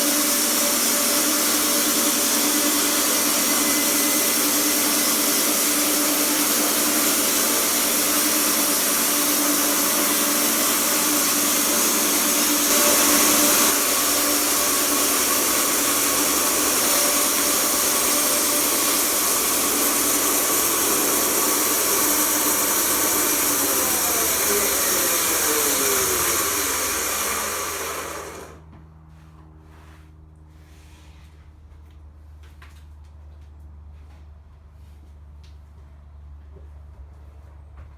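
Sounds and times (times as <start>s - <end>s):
sawmill machine running: 0.0s - 28.6s.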